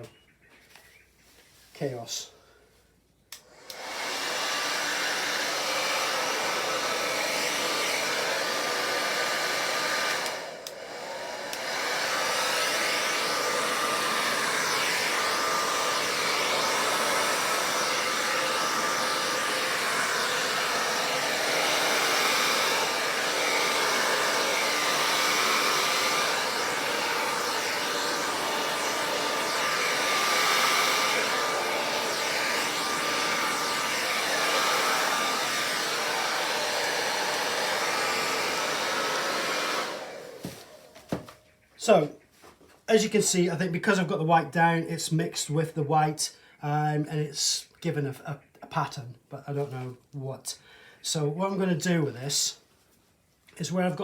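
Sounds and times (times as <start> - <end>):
hairdryer blowing air: 3.3 - 41.4
hairdryer switch click: 10.2 - 10.8, 11.5 - 11.7.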